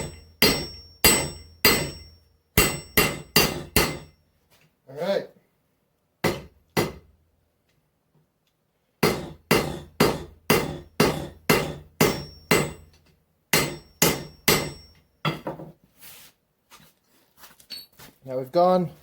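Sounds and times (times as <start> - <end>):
hammer striking steel on anvil: 0.0 - 4.2, 6.2 - 7.1, 9.0 - 15.4.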